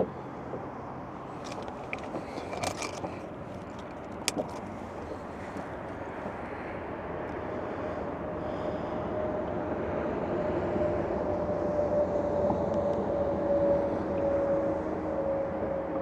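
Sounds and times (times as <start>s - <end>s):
steady rumble: 0.0s - 16.0s
sharp clicks and knocks: 1.4s - 4.8s.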